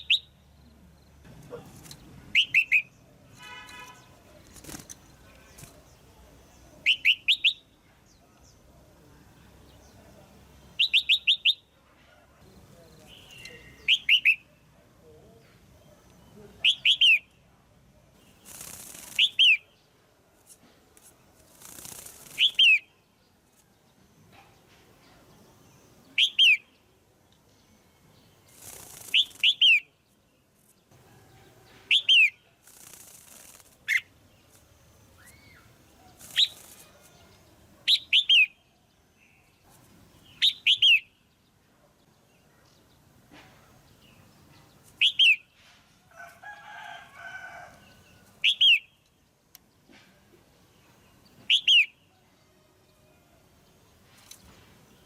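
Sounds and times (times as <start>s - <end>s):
bulbul chirping: 2.3s - 3.0s
wing flaps rustling: 4.2s - 5.9s, 18.4s - 19.4s, 20.4s - 22.7s, 28.5s - 29.5s, 32.6s - 34.7s, 36.2s - 37.2s.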